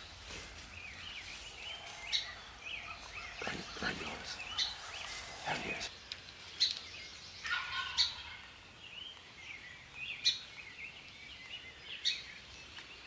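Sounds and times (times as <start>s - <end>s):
songbirds chirping: 0.0s - 13.0s
turkey gobbling: 7.5s - 8.4s.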